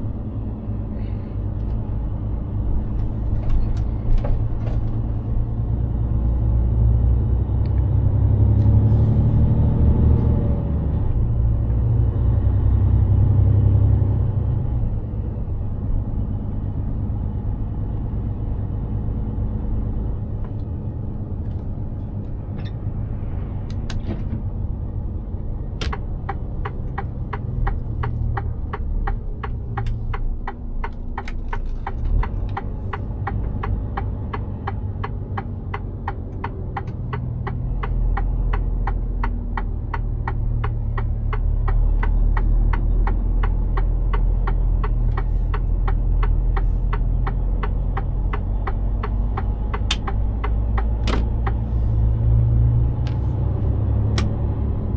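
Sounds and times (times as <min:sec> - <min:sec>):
truck diesel engine rumble: 0:00.0 - 0:54.9
turn signal ticking: 0:25.8 - 0:54.9.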